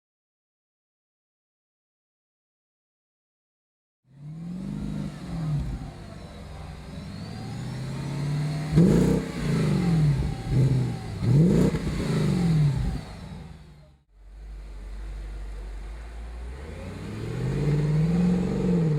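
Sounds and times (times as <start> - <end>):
car engine revving: 4.1 - 18.9.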